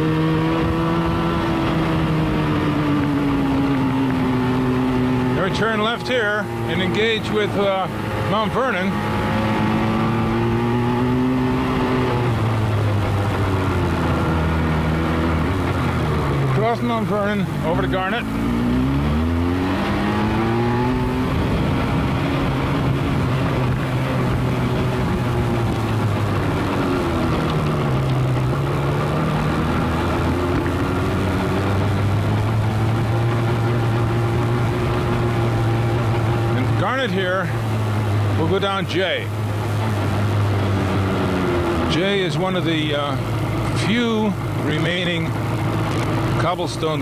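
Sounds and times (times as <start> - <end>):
motorcycle engine running: 0.0 - 47.0
wind and road noise: 0.0 - 47.0.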